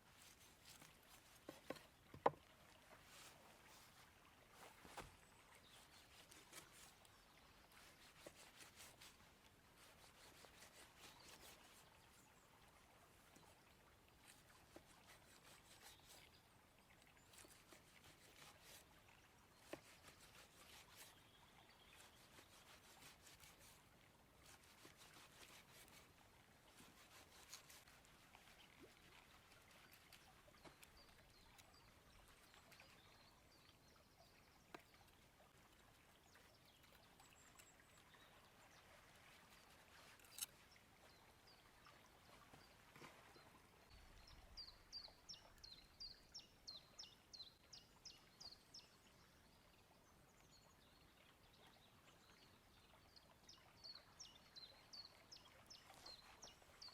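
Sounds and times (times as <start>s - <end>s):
faint clicks and crackles: 39.4s - 40.6s.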